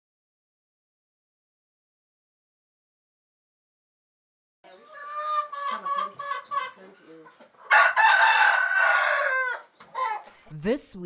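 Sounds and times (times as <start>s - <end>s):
rooster crowing: 4.7s - 10.4s
chickens clucking: 4.7s - 10.6s.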